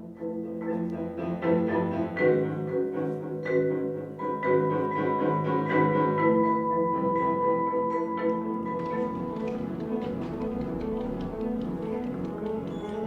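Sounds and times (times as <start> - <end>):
mallet percussion music: 5.8 - 13.0.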